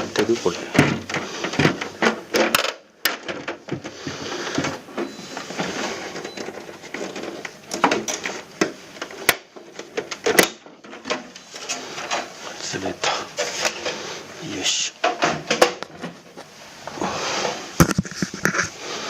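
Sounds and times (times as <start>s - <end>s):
tape rustling and scraping: 0.0s - 14.3s, 15.9s - 19.0s
plastic clicks and knocks: 0.7s - 3.9s.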